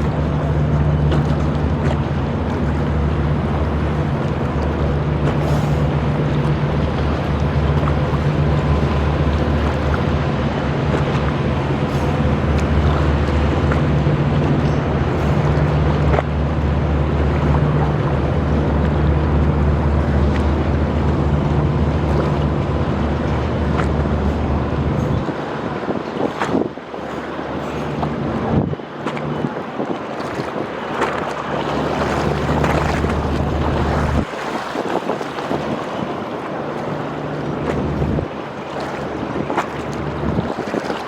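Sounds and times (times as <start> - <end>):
boat engine humming: 0.0 - 41.0
water washing: 0.0 - 41.0
wind noise: 0.0 - 41.0.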